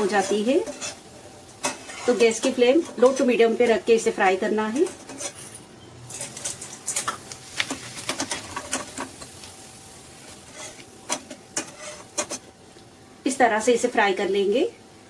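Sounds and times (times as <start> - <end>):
wire strainer scooping: 0.0 - 3.7, 4.6 - 12.5
potato sticks frying in oil: 0.0 - 5.4, 6.1 - 14.7
sharp crackles and clicks: 6.1 - 9.6.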